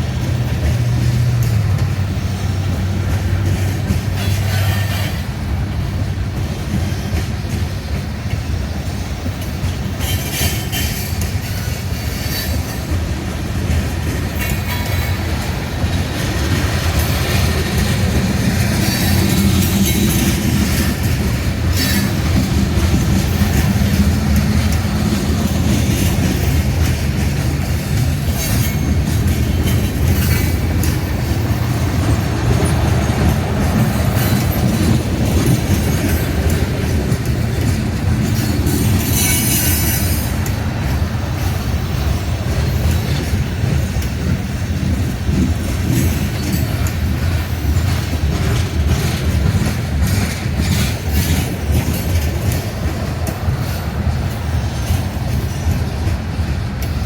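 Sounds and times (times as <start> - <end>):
train cars rumbling on rails: 0.0 - 57.0
wheels clacking: 0.0 - 57.0
high wheel squeals: 38.3 - 40.5.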